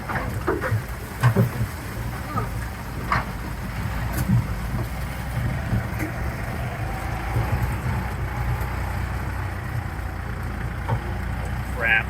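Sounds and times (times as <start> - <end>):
knocks and rattles: 0.0 - 8.9
tractor engine rumbling: 0.0 - 12.0.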